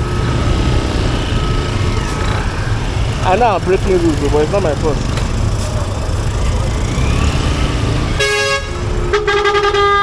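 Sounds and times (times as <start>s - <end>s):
motorcycle engine rumble: 0.0s - 10.0s
vehicle horns honking: 8.2s - 10.0s.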